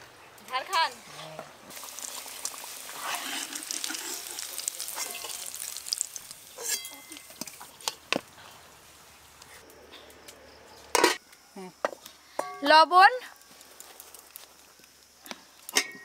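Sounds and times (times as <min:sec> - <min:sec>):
potatoes sizzling in hot oil: 0:01.7 - 0:09.4, 0:12.6 - 0:16.0
metal ladle scraping: 0:06.5 - 0:08.0
metal clinks in steel bowl: 0:06.6 - 0:07.3.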